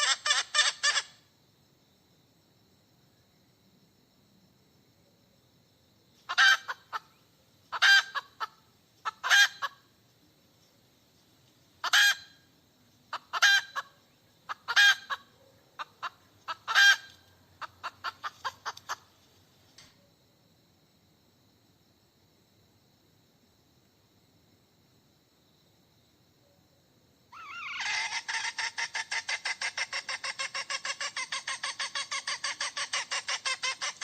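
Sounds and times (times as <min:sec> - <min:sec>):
hen cackling: 0:00.0 - 0:01.2, 0:06.3 - 0:09.8, 0:11.8 - 0:12.4, 0:13.1 - 0:13.9, 0:14.5 - 0:19.1, 0:27.3 - 0:34.0.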